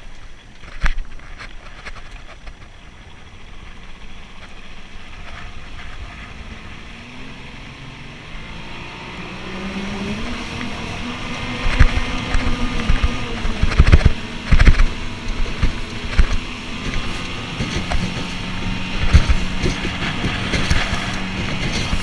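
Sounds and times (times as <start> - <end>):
outboard motor running: 0.1 - 22.0
wind buffeting microphone: 9.2 - 22.0.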